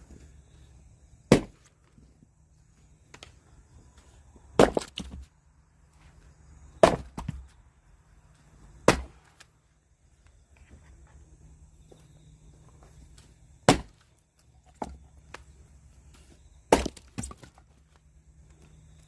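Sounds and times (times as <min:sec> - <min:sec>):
axe chopping firewood: 0:01.2 - 0:01.9, 0:04.5 - 0:05.3, 0:06.7 - 0:07.5, 0:08.8 - 0:09.5, 0:13.6 - 0:15.4, 0:16.7 - 0:17.7.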